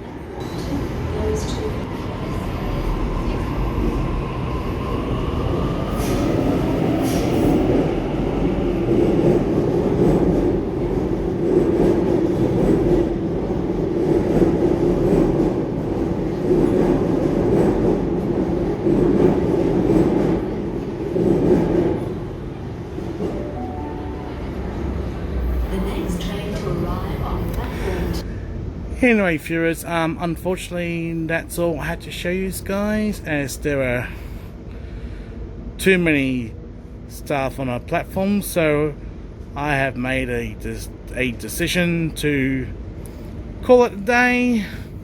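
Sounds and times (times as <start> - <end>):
wheels rumbling on rail: 0.0 - 28.9.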